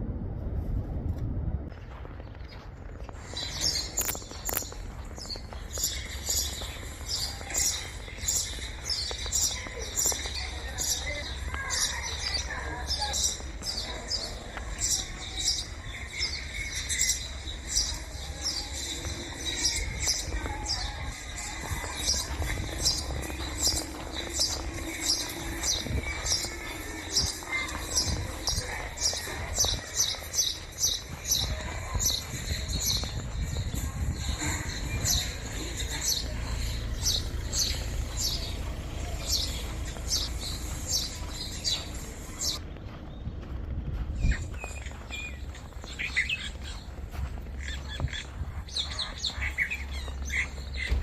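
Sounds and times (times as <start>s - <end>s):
low steady rumble: 0.0s - 3.2s, 33.1s - 45.7s
low background rumble: 0.0s - 51.0s
small birds chirping: 2.1s - 51.0s.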